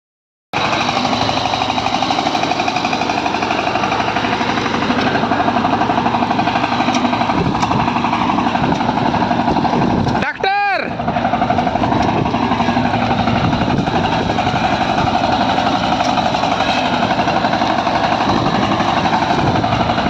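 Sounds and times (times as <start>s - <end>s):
diesel engine running: 0.6s - 20.0s.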